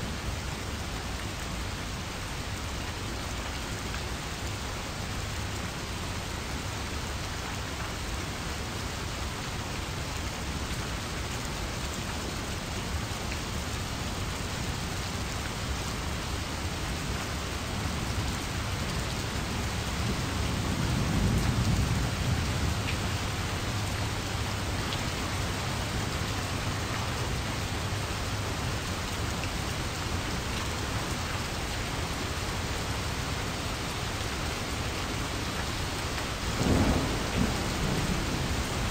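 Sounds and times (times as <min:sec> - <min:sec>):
steady rain: 0:00.0 - 0:38.9
thunder rumbling: 0:36.6 - 0:38.9.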